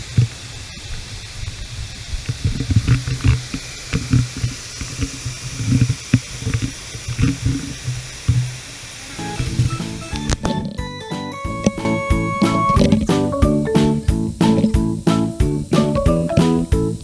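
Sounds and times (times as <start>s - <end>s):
waterfall rushing: 8.8s - 10.7s, 11.5s - 17.0s
low thuds: 11.5s - 17.0s.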